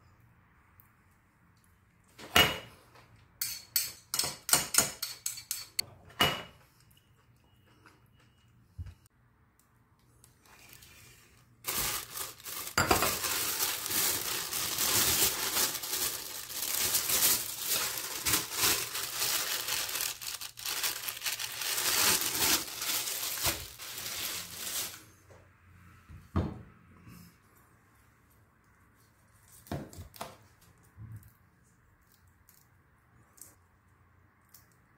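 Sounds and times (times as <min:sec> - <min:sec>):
plastic bag crinkling: 0:10.4 - 0:25.0.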